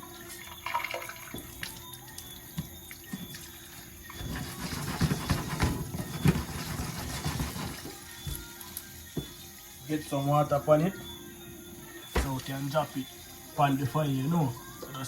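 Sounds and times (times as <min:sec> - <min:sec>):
water sloshing in a pot: 0:00.0 - 0:08.2, 0:12.2 - 0:13.2.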